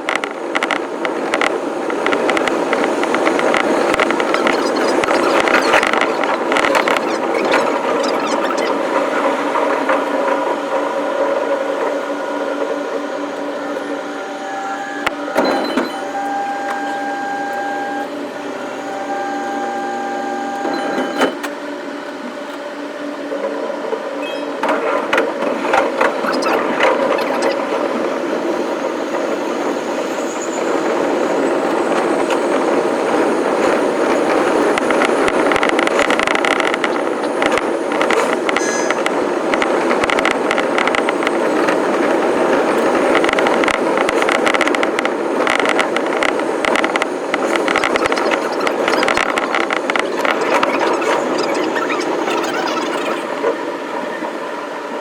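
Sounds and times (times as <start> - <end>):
wheels clicking over rail joints: 0.0 - 12.1, 30.5 - 53.6
train motor tones and rumble: 0.0 - 55.0.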